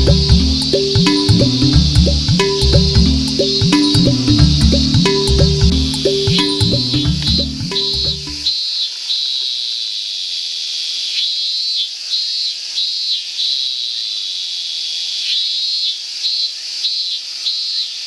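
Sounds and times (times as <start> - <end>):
cicadas droning: 0.0 - 8.5.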